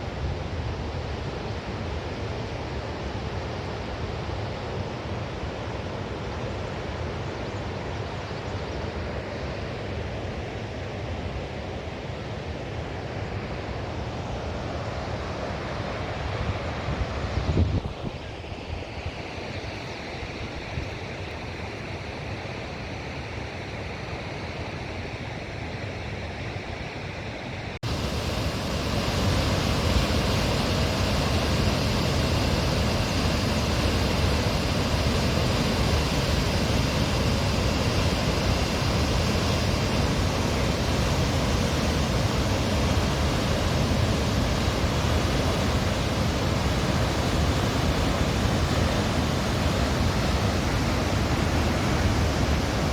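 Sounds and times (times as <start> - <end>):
waterfall rushing: 27.8 - 52.9.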